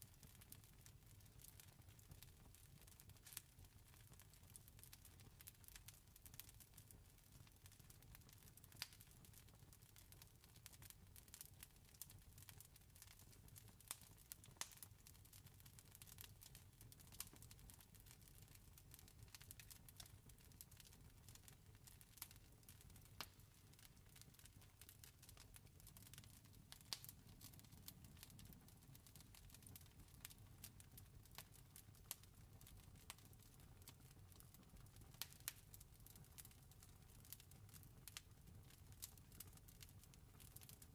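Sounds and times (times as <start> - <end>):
campfire crackling: 13.8 - 14.9, 18.8 - 34.5, 35.1 - 36.5, 37.2 - 40.9.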